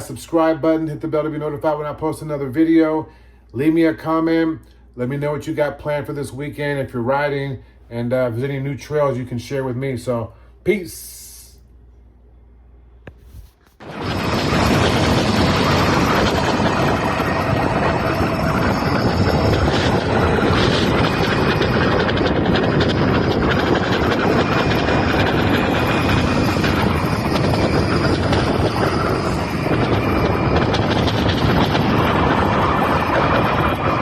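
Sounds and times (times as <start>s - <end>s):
wind rush on microphone: 13.1s - 34.0s.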